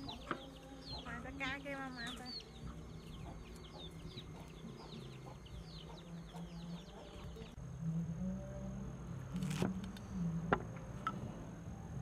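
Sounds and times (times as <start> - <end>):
birds chirping: 0.0 - 7.6.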